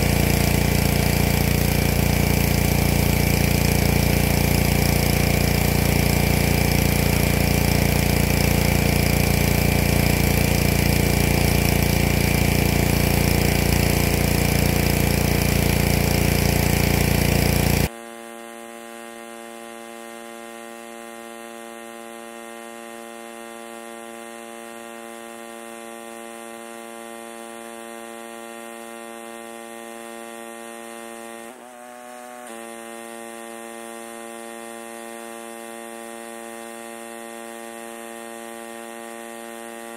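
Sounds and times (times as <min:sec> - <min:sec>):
machine hum: 0:00.0 - 0:17.9
pressure washer spraying: 0:00.0 - 0:17.9.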